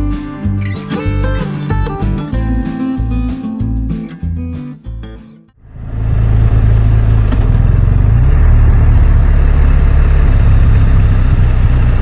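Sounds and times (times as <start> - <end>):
motorcycle engine running: 5.6 - 12.0
wind and road noise: 5.6 - 12.0.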